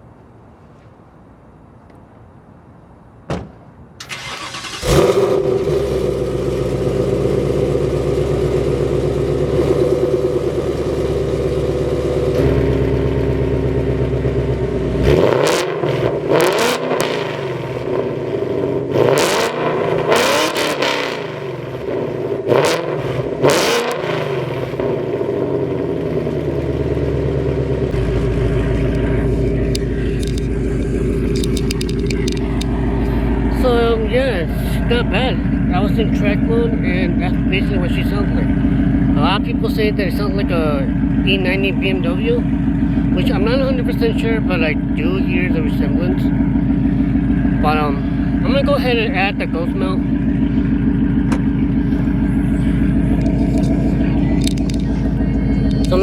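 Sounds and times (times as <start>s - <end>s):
click: 1.8s - 2.0s
car engine starting and idling: 3.9s - 56.0s
engine revving: 4.1s - 56.0s.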